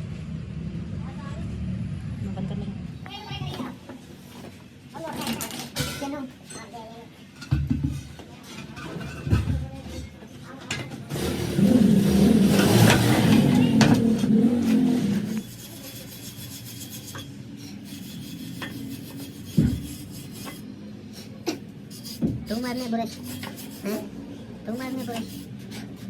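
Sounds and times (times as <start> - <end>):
metal rasping scrape: 11.1 - 26.0.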